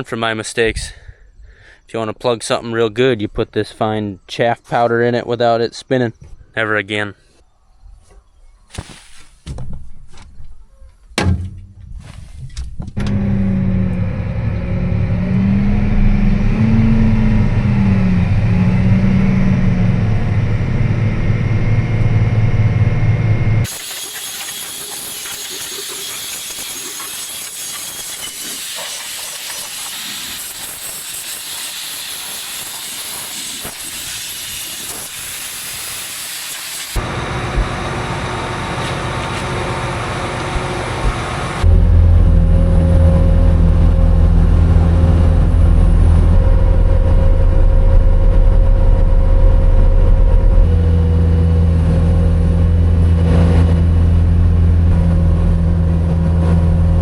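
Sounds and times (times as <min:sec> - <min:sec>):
farm machine engine running: 0:13.0 - 0:27.9, 0:36.9 - 0:57.0.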